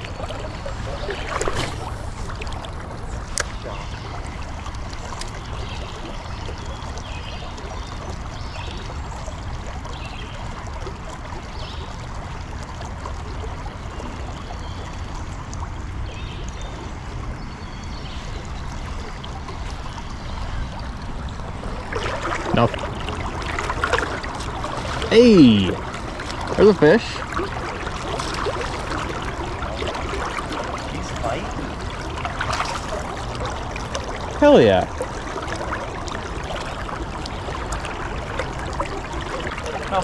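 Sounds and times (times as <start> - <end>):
river water lapping: 0.0 - 40.0.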